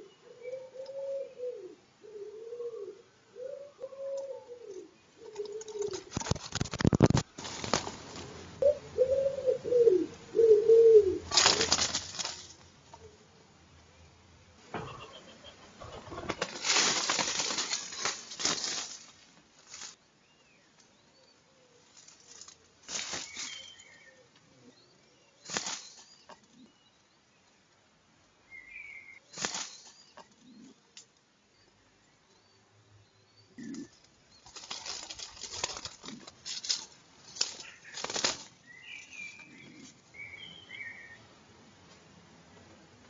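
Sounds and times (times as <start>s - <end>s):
pigeon wings flapping: 5.6s - 8.4s, 11.3s - 12.6s, 15.7s - 19.1s, 34.5s - 36.8s, 37.4s - 38.6s.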